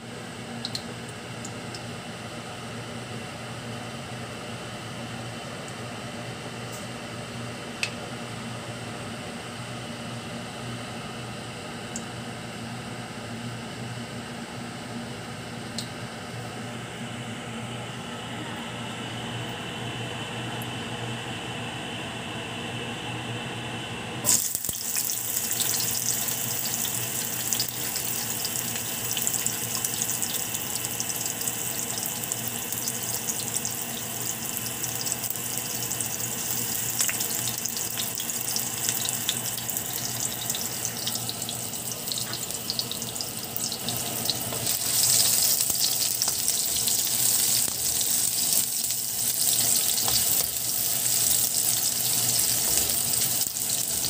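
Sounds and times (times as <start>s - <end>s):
ginger sizzling in hot oil: 24.3s - 54.0s.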